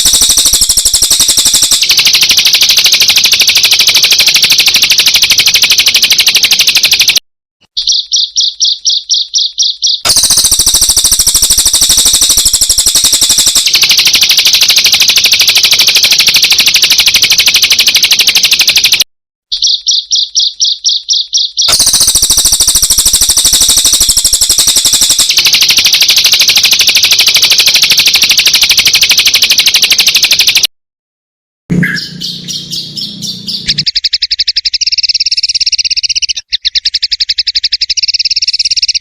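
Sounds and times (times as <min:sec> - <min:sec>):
fast high-pitched bird trills: 0:00.0 - 0:30.7, 0:31.7 - 0:39.0
slow separate bird chirps: 0:06.2 - 0:16.3, 0:17.5 - 0:27.7, 0:31.7 - 0:39.0.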